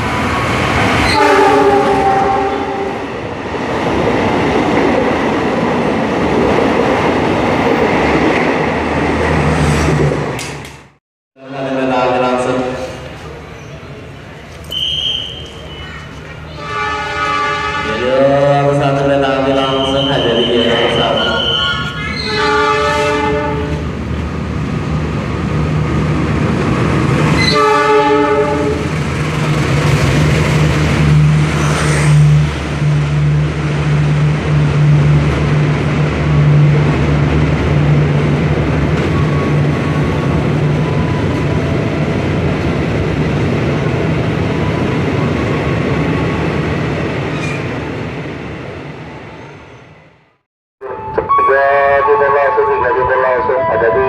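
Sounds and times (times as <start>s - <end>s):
train carriages rumbling and clattering: 0.0s - 11.0s, 15.4s - 48.4s
train horn blast: 1.0s - 3.0s, 16.5s - 18.6s, 19.9s - 23.9s, 27.4s - 28.9s
train engine drone: 11.5s - 54.0s.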